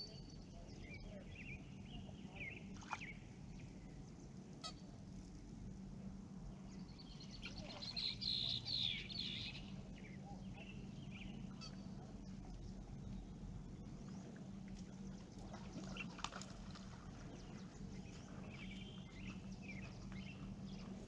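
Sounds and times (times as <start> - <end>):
steady low hum: 0.0 - 21.0
birds calling: 6.6 - 21.0.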